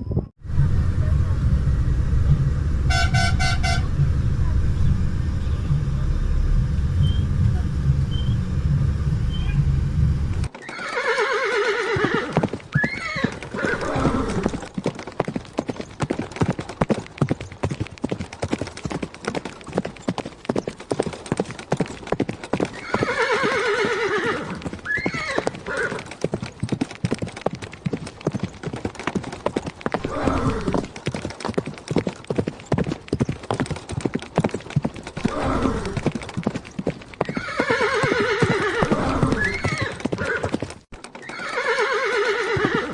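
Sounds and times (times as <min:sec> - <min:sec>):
low rumble: 0:00.0 - 0:10.5
hooves clip-clopping: 0:00.5 - 0:42.9
horse whinnying: 0:10.5 - 0:14.6, 0:22.8 - 0:26.1, 0:30.0 - 0:30.9, 0:35.2 - 0:36.1, 0:37.2 - 0:40.6, 0:41.2 - 0:42.9.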